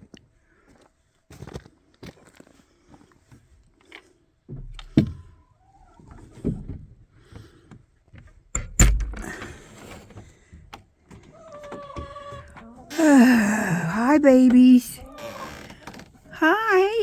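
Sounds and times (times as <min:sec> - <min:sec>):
door knocks and thuds: 0:08.6 - 0:09.5.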